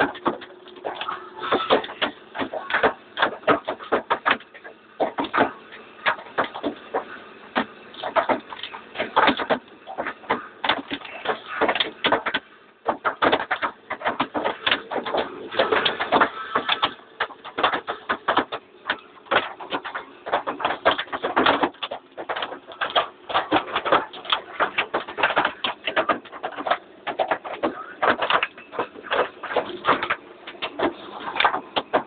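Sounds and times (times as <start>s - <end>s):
hailstones hitting hard surfaces: 8.0s - 32.0s.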